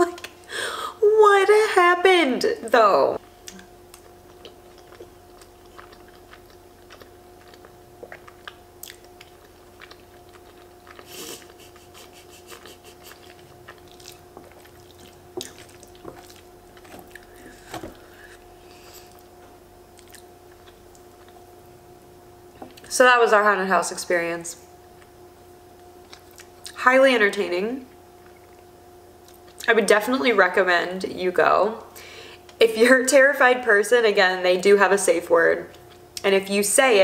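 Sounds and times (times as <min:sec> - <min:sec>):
faint steady hum: 0:00.0 - 0:37.0
chewing pasta: 0:03.4 - 0:21.7, 0:25.8 - 0:26.8, 0:28.1 - 0:29.7, 0:35.7 - 0:36.2.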